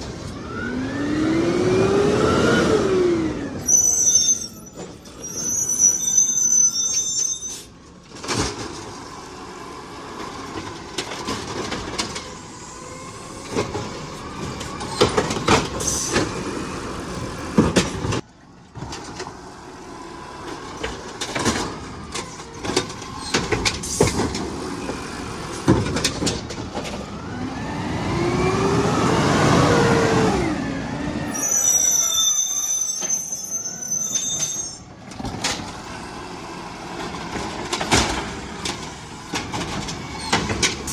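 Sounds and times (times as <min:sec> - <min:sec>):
truck engine revving: 0:00.0 - 0:03.6, 0:19.5 - 0:31.9
high squeal: 0:03.6 - 0:07.7, 0:31.2 - 0:34.9
garbage truck knocks and clanks: 0:08.1 - 0:09.2, 0:10.1 - 0:12.5, 0:13.4 - 0:16.5, 0:17.2 - 0:19.4, 0:20.4 - 0:27.2, 0:35.0 - 0:36.0, 0:36.8 - 0:40.9.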